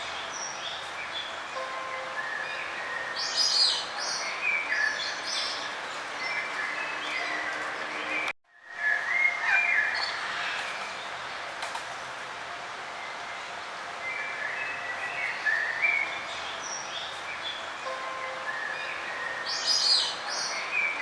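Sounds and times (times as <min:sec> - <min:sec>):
small songbirds chirping: 0:00.0 - 0:08.3, 0:14.0 - 0:21.0
outdoor background hiss: 0:08.5 - 0:21.0.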